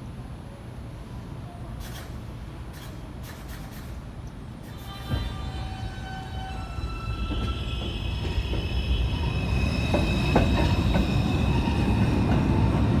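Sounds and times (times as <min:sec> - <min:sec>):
subway train running on track: 0:00.0 - 0:13.0
wheels clacking over rail joints: 0:06.8 - 0:13.0.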